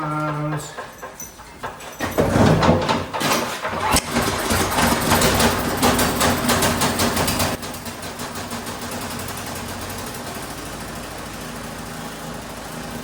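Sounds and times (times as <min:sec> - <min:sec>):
snowblower engine running: 0:03.5 - 0:13.0.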